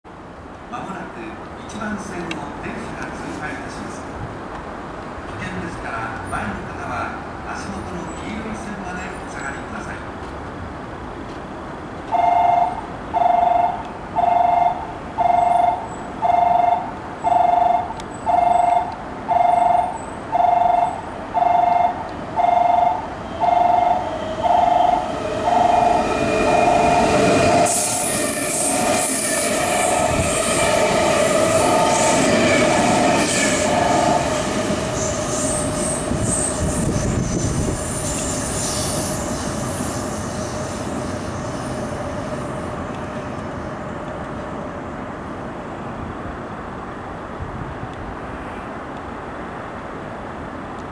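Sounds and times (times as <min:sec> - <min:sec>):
station warning tone beeping: 0:12.1 - 0:36.9
train wheels rumbling and squealing: 0:22.3 - 0:45.0.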